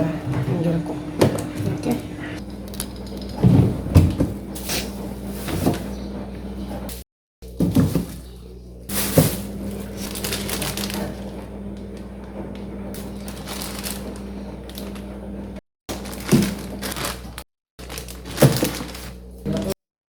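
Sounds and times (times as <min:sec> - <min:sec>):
low hum: 0:00.0 - 0:04.6
plastic bags crinkling: 0:08.9 - 0:12.1, 0:13.0 - 0:15.1, 0:15.9 - 0:19.8.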